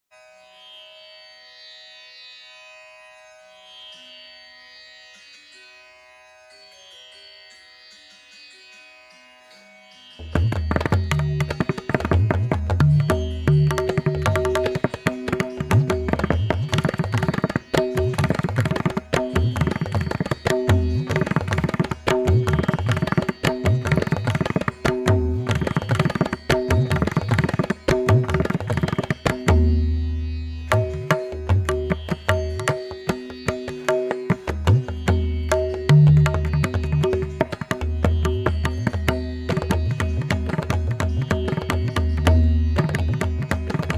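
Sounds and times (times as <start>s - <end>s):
melodic accompaniment of held notes: 5.1s - 43.9s
tabla playing fast rolls: 10.2s - 43.9s.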